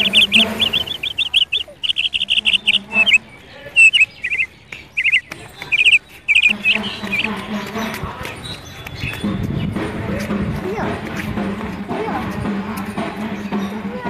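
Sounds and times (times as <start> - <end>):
bird chirping: 0.0 - 9.8.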